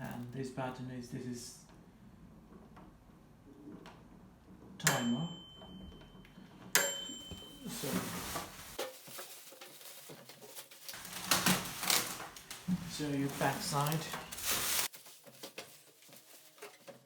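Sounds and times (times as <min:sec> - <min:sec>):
microwave timer bell ding: 0:04.8 - 0:07.9
rustling handling noise: 0:07.0 - 0:17.0.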